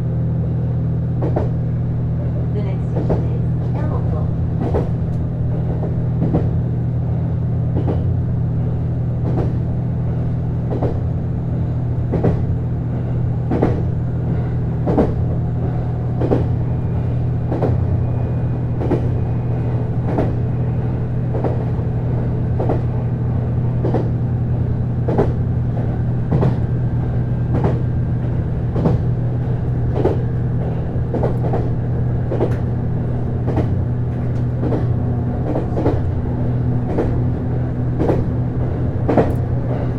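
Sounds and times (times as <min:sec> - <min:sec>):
wheels clicking over rail joints: 0:27.5 - 0:36.1, 0:38.0 - 0:39.9.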